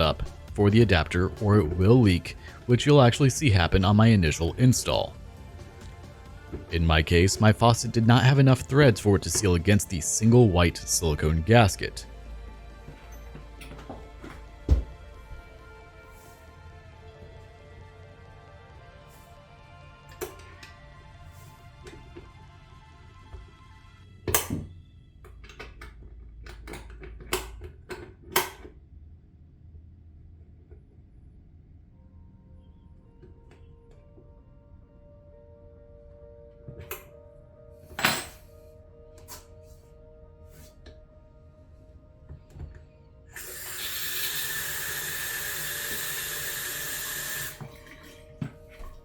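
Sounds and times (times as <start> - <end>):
faucet water running: 43.4 - 49.0.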